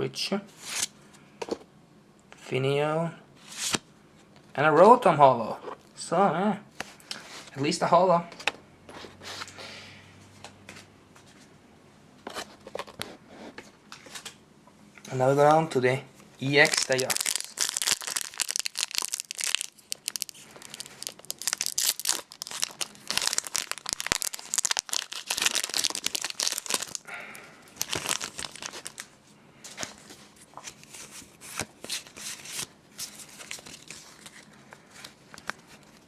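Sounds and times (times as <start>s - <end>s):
foil wrapper tearing and crinkling: 16.6s - 27.1s, 27.8s - 29.1s.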